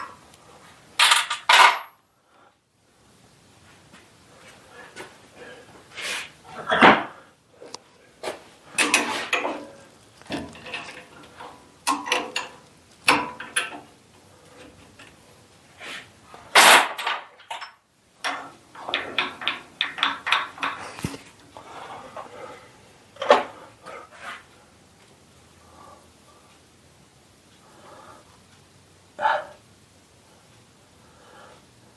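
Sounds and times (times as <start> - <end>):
hand tools clanking on metal: 1.0 - 2.0, 8.8 - 13.9, 16.5 - 21.1.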